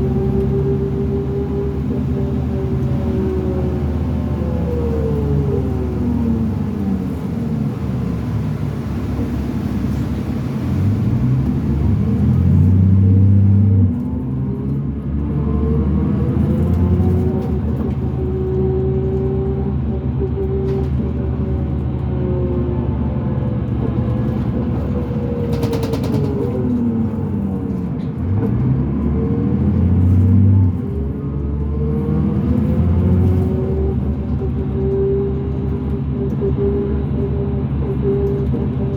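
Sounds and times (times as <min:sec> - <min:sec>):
bus diesel engine accelerating: 0:00.0 - 0:38.9
whine with road speed: 0:00.0 - 0:38.9.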